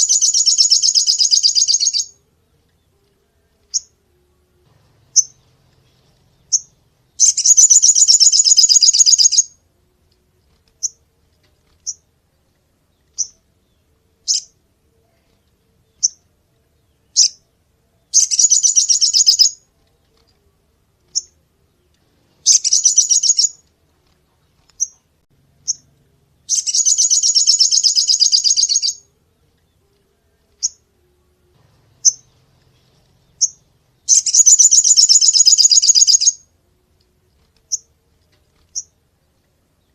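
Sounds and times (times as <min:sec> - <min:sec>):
bird chirping and trilling: 0:00.0 - 0:02.2, 0:03.7 - 0:04.0, 0:05.0 - 0:09.6, 0:13.0 - 0:14.6, 0:16.8 - 0:17.5, 0:18.1 - 0:19.6, 0:21.1 - 0:21.4, 0:22.4 - 0:23.6, 0:25.6 - 0:29.8, 0:31.8 - 0:36.5.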